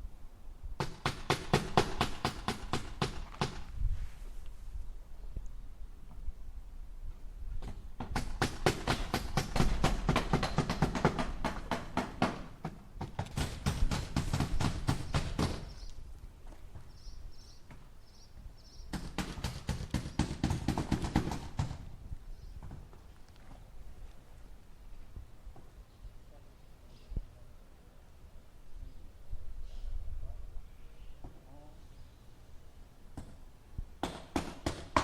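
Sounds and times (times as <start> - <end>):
hammer driving nails into wood: 0.8 - 3.7, 7.6 - 15.8, 18.9 - 21.8, 34.0 - 35.0.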